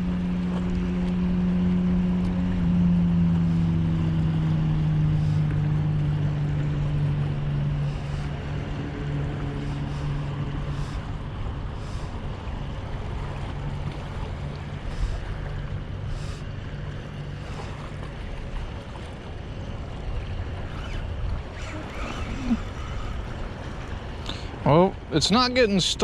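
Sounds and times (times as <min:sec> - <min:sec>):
boat engine droning: 0:00.0 - 0:26.0
water: 0:00.0 - 0:26.0.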